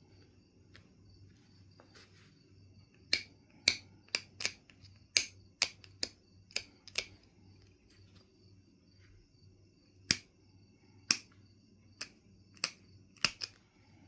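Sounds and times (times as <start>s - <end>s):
flint knapping clicks: 3.1s - 7.2s, 12.0s - 13.6s.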